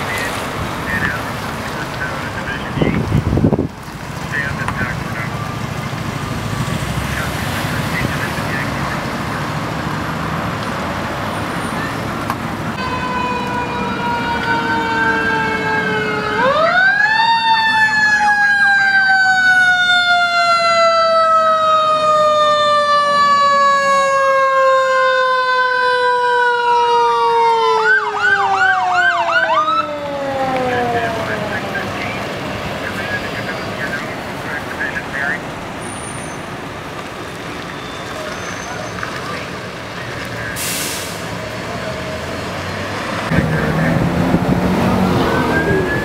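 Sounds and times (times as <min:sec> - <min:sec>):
road traffic: 0:00.0 - 0:46.0
siren sweeping up and falling: 0:12.8 - 0:32.2, 0:43.3 - 0:46.0
siren wailing and yelping: 0:12.8 - 0:32.3, 0:45.0 - 0:46.0.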